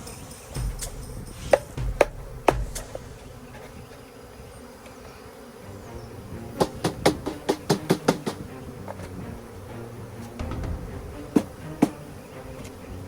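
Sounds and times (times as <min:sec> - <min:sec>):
bees buzzing: 0:00.0 - 0:13.0
sharp knocks on bee box: 0:00.5 - 0:04.2, 0:06.5 - 0:09.2, 0:10.3 - 0:12.8.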